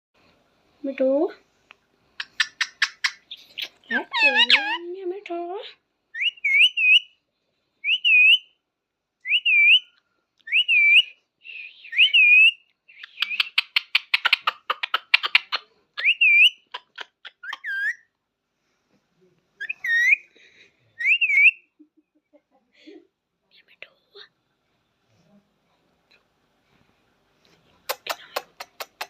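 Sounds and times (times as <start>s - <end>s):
parrot clicking chatter: 2.2s - 4.8s, 13.1s - 18.0s
parrot whistling: 6.2s - 7.2s, 7.8s - 8.5s, 9.2s - 9.9s, 10.5s - 13.8s, 16.0s - 16.8s, 19.6s - 20.2s, 21.0s - 21.7s.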